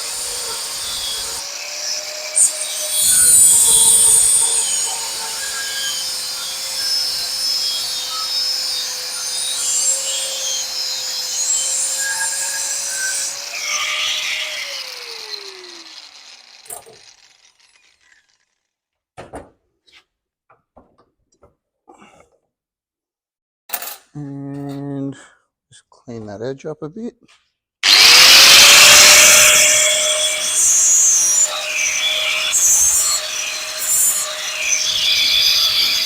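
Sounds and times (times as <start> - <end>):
angle grinder cutting steel: 0.0 - 18.6, 27.8 - 36.0.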